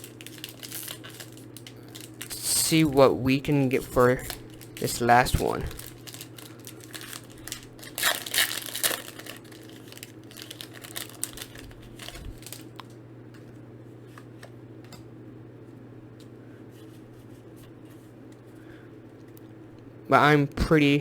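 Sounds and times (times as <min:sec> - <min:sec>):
foil pack crinkling: 0:00.0 - 0:12.9.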